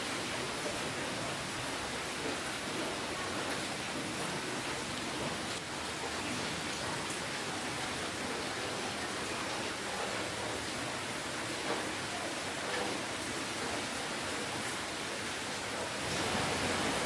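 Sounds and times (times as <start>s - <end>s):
rain hissing: 0.0s - 17.0s
raindrops pattering: 0.0s - 17.0s.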